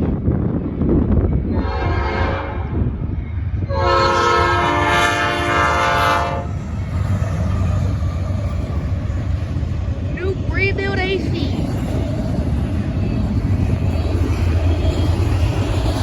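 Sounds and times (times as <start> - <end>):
passing train rumble: 0.0 - 16.0
locomotive air horn blasts: 1.6 - 2.6, 3.7 - 6.5.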